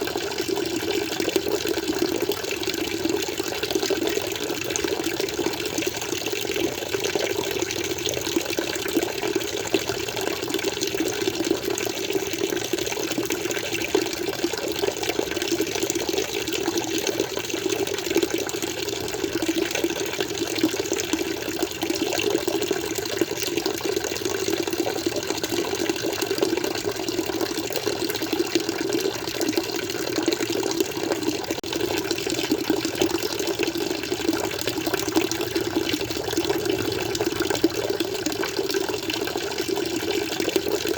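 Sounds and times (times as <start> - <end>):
aquarium water flowing and splashing: 0.0 - 40.9.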